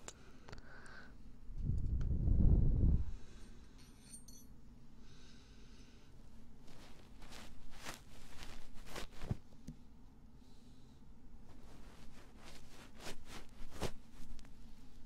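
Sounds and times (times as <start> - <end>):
scratching and rustling on microphone: 6.6 - 9.6, 11.4 - 15.0.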